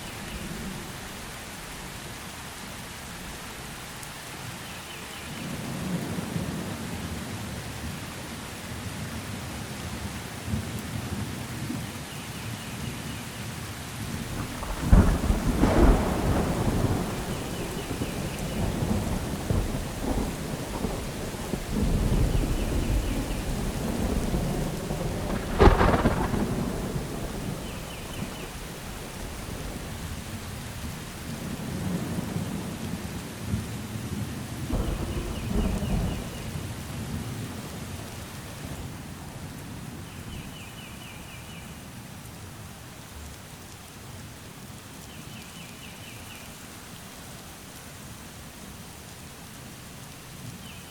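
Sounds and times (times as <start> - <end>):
steady rain: 0.0 - 50.9
low rumbling thunder: 14.0 - 37.8
sharp thunderclaps: 14.1 - 30.9, 34.7 - 36.6.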